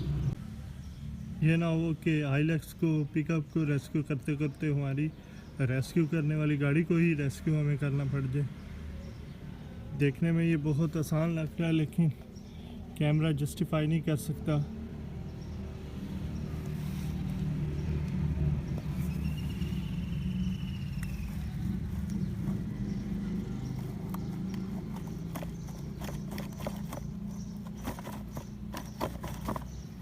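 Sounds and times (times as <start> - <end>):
clicks and clatter: 24.0 - 29.8.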